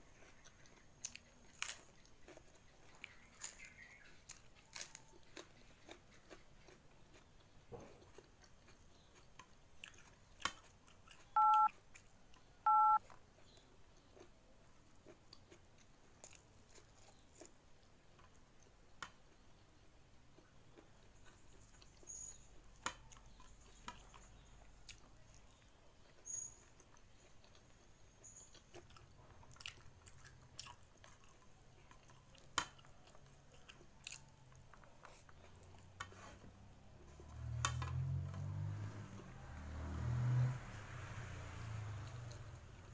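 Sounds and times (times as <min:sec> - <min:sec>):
chewing and mouth clicks: 0:00.0 - 0:39.2
two-tone electronic beeps: 0:11.4 - 0:11.7, 0:12.7 - 0:13.0.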